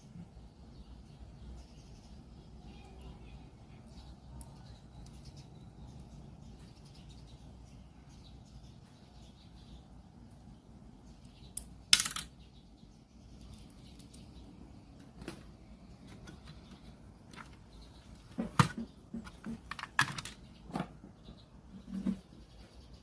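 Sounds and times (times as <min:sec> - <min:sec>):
clicks and taps of small parts: 0:11.2 - 0:12.4.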